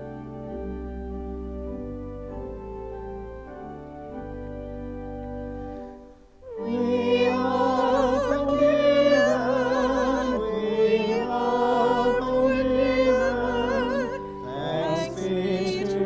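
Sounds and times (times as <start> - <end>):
church organ chords: 0.0 - 16.0
person singing with vibrato: 6.4 - 16.0.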